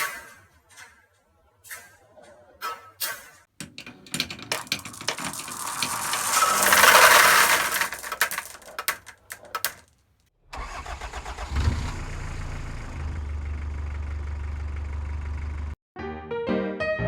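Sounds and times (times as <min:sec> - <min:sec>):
marbles rolling down wooden track: 0:03.6 - 0:09.9
low engine-like hum: 0:11.8 - 0:15.8.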